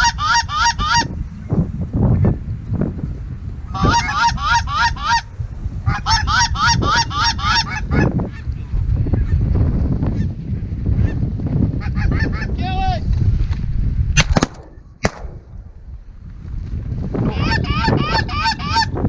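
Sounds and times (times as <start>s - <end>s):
geese honking: 0.0s - 1.1s, 3.8s - 5.3s, 5.9s - 8.1s
wind buffeting microphone: 0.0s - 19.0s
shotgun reports: 14.2s - 15.8s.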